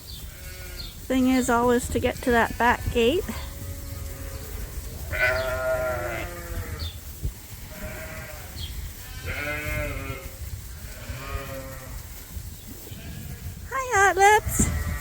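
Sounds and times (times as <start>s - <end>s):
sheep bleating: 5.1s - 6.9s, 7.7s - 12.0s.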